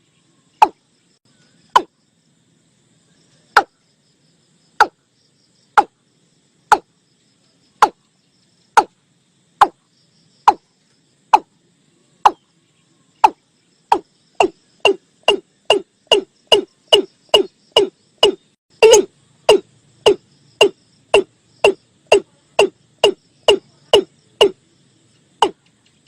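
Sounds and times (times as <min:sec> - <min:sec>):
faint insect trill: 0:00.0 - 0:26.0.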